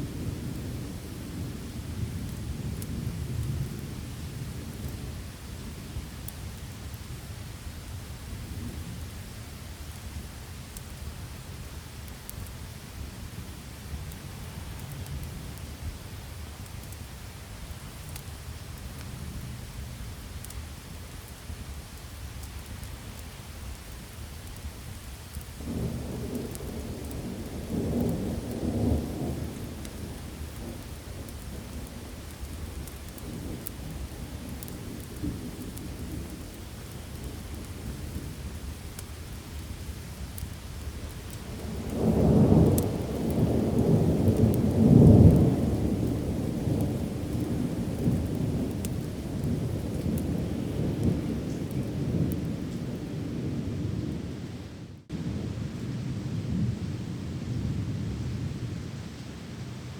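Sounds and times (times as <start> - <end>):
heavy rain: 0.0 - 59.9
thunder rumbling: 25.6 - 40.5, 41.2 - 59.5.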